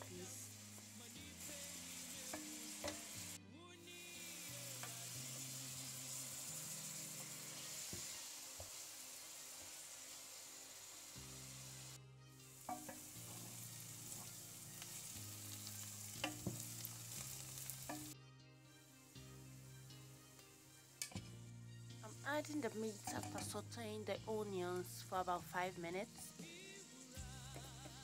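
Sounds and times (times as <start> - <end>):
vegetables sizzling in oil: 0.0 - 28.0
utensil clicking against pan: 2.3 - 3.2, 16.2 - 16.6, 17.8 - 18.2, 23.0 - 23.6.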